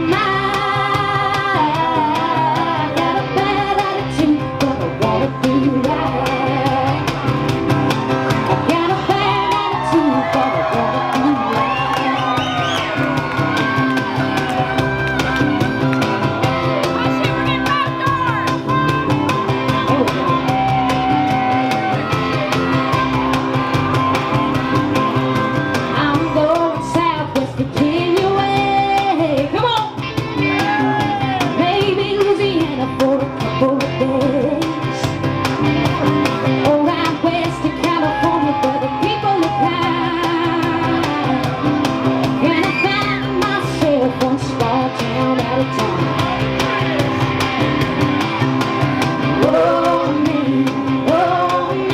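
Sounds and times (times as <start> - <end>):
person singing: 0.0 - 7.3, 8.4 - 12.8, 42.4 - 47.1, 49.2 - 51.9
rock band playing: 0.0 - 51.9.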